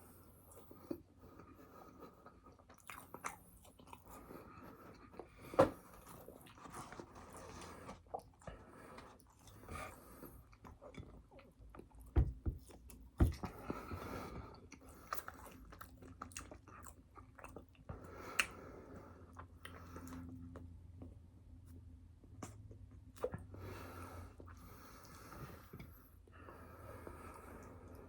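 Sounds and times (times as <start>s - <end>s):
chewing and biting food: 1.8s - 18.6s.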